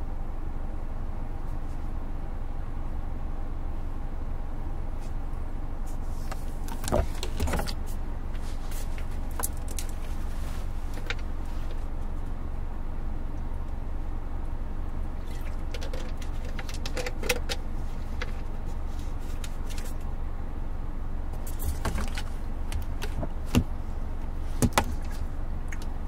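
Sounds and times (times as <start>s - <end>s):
air conditioning fan: 0.0s - 26.0s
road and engine rumble: 0.0s - 26.0s
small clicks and rattles: 15.4s - 17.6s.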